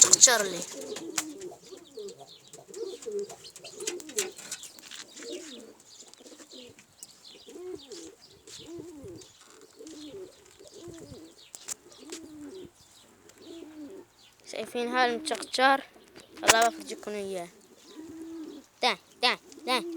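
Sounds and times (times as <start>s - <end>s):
faint scratchy ticks: 0.0s - 7.2s, 9.1s - 12.3s
pigeons cooing: 0.0s - 19.9s.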